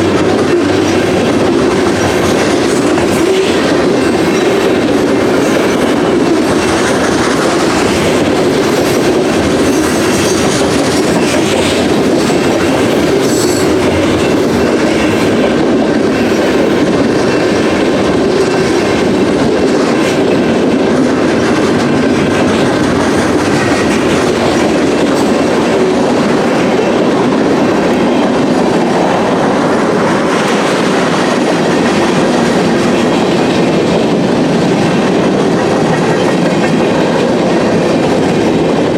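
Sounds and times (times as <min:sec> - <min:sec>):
freight train wheels clattering: 0:00.0 - 0:38.9.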